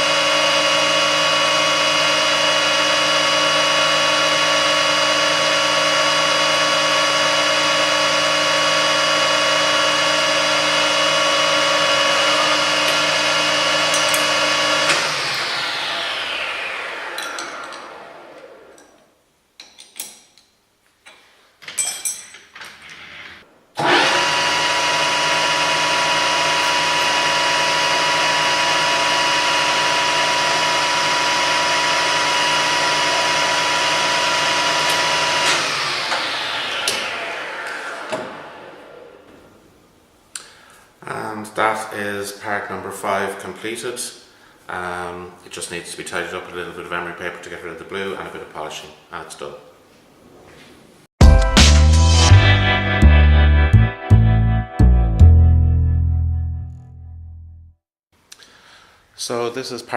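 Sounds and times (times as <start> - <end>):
metal lathe running: 0.0 - 18.9, 23.8 - 39.1
lathe spinning down with whine: 0.0 - 19.1, 23.8 - 39.8.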